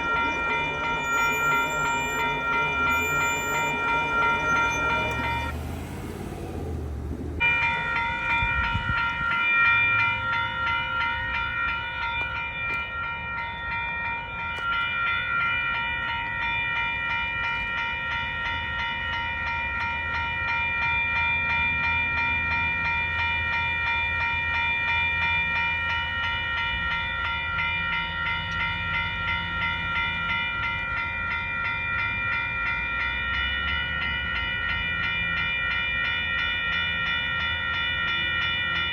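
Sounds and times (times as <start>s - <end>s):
freight train rumbling past: 0.0s - 12.5s
railroad crossing bell ringing: 0.0s - 38.9s.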